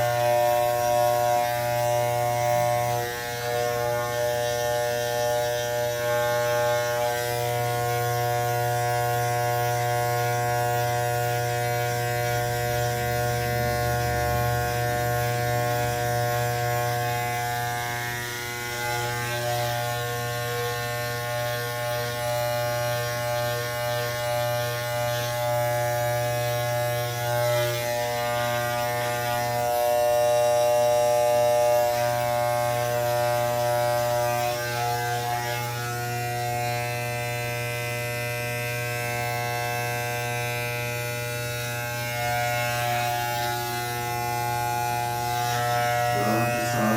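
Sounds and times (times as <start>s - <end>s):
electric hair clippers buzzing: 0.0s - 46.9s.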